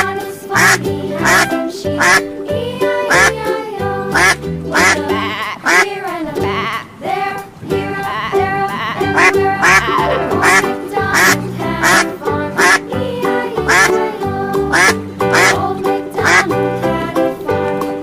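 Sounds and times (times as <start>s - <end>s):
duck quacking: 0.6s - 2.3s, 3.1s - 3.4s, 4.1s - 5.9s, 8.8s - 12.9s, 13.6s - 14.0s, 14.7s - 16.5s
background music with beat: 9.1s - 18.0s.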